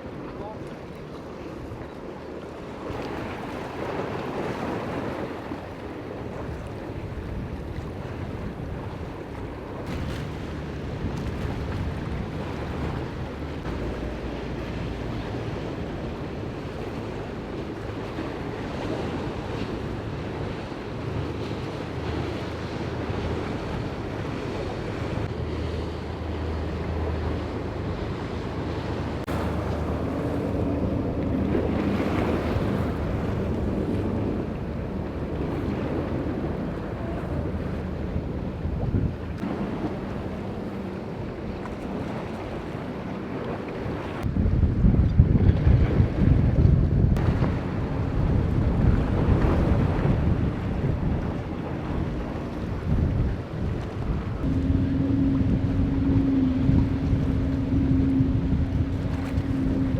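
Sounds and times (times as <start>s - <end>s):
waves washing and breaking: 0.0s - 59.9s
wind buffeting microphone: 1.4s - 59.9s
low steady rumble: 19.4s - 42.9s, 44.2s - 59.9s.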